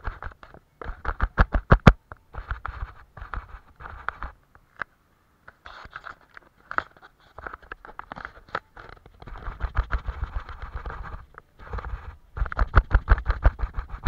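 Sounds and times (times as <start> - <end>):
paintbrush scratching on paper: 2.3 - 4.4, 9.2 - 14.0.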